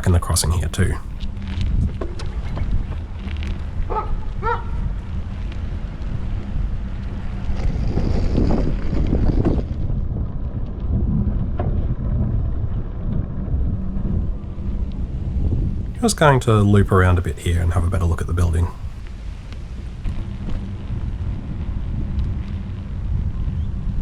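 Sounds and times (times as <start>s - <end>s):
wind rumbling on microphone: 1.1s - 15.9s.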